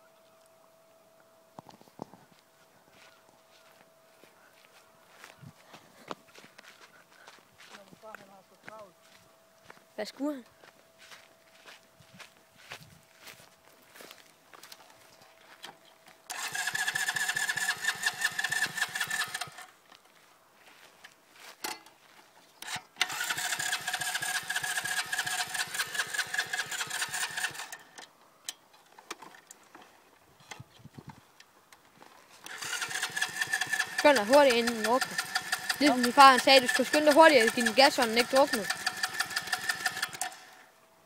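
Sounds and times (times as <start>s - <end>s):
dirt bike engine starting and stalling: 15.6s - 19.8s, 22.6s - 28.1s, 32.4s - 40.7s.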